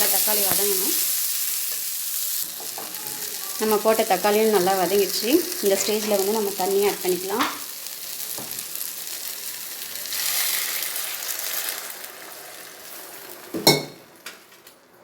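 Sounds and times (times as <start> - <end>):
oil sizzling in a pan: 0.0 - 14.7
metal clink on a pan: 13.6 - 14.0.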